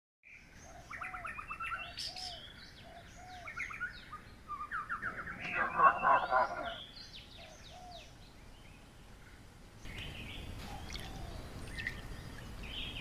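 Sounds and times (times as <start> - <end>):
birds chirping: 0.2 - 13.0
low arched bird call: 0.6 - 8.1.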